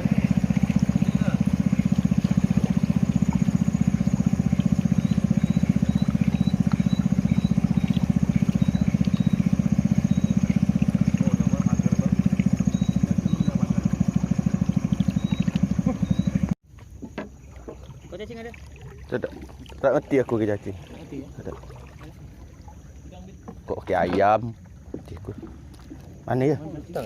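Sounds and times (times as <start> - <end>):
small engine puttering: 0.0 - 16.6.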